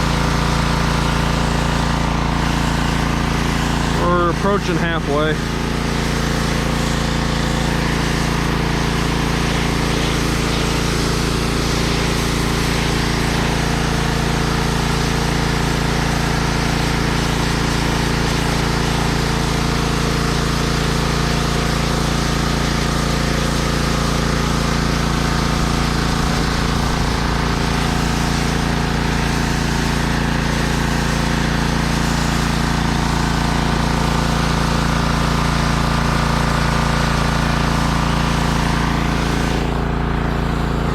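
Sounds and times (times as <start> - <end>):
water spray hissing: 0.0 - 15.2, 23.9 - 31.3, 38.0 - 39.9
pressure washer motor drone: 0.0 - 40.9.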